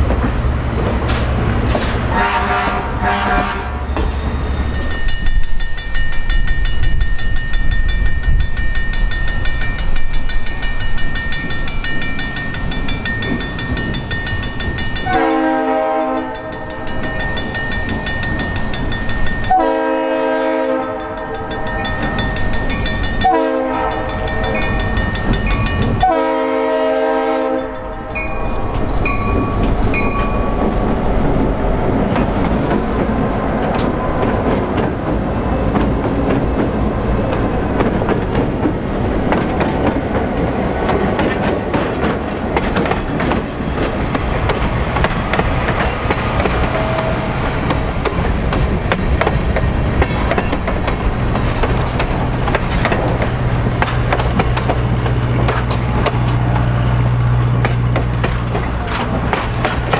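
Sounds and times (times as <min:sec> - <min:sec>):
wheels clicking over rail joints: 0:00.0 - 0:02.4, 0:03.3 - 0:26.4, 0:27.4 - 0:59.9
train rumbling past: 0:00.0 - 0:59.9
locomotive air horn: 0:02.1 - 0:03.9, 0:15.0 - 0:16.8, 0:19.5 - 0:22.3, 0:23.2 - 0:24.8, 0:26.0 - 0:28.2, 0:46.6 - 0:47.5.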